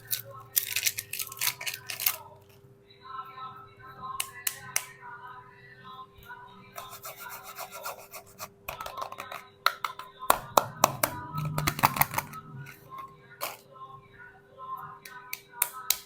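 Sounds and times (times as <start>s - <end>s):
soap packaging crinkling: 0.0s - 2.2s.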